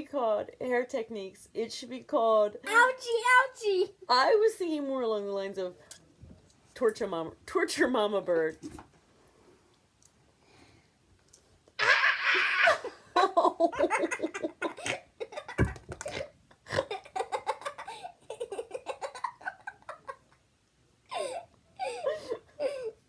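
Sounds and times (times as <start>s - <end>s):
person giggling: 11.8s - 20.4s, 21.1s - 23.0s.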